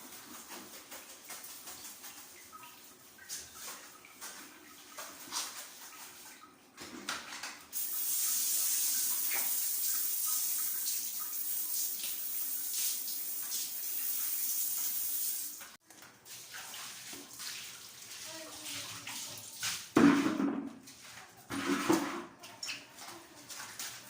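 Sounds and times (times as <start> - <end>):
water running from a tap: 7.7 - 20.0.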